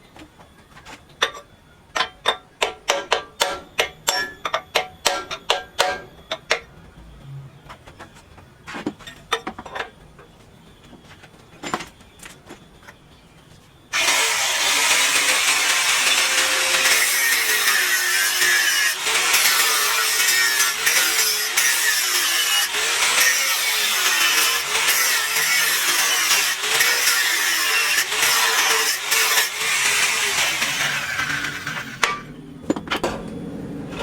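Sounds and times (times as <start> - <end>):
power tool running: 13.9 - 32.3
knocks and clanks: 30.4 - 34.0.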